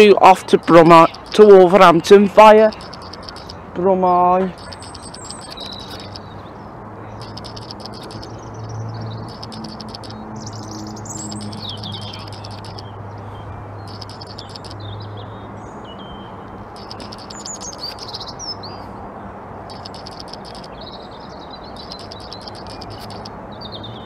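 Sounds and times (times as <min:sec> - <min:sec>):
songbird singing trills: 0:00.1 - 0:03.6, 0:04.5 - 0:18.9, 0:19.7 - 0:24.0.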